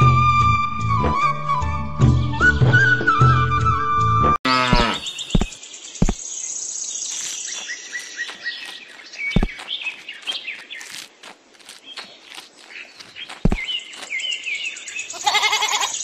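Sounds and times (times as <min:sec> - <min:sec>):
small birds chirping: 0:04.5 - 0:16.0.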